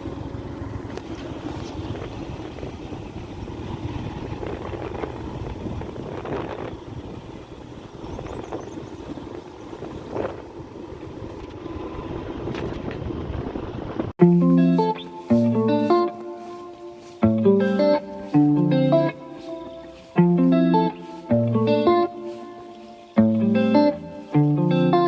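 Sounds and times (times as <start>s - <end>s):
motorcycle engine running: 0.0s - 25.0s
wind rushing over microphone: 1.0s - 14.2s.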